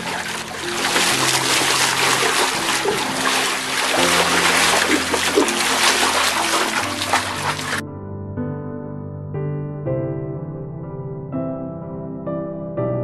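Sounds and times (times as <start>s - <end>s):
water splashing and trickling: 0.0s - 7.8s
low background music: 0.0s - 10.5s.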